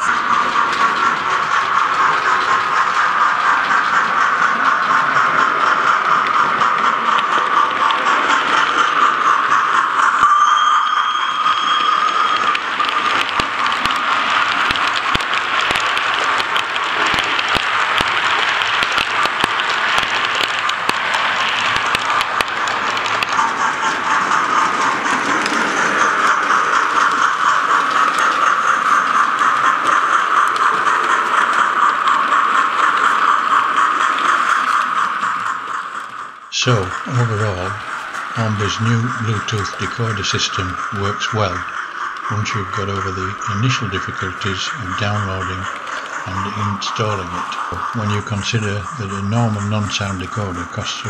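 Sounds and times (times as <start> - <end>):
model locomotive steam hiss: 0.0 - 51.0
sharp clicks: 11.8 - 36.5.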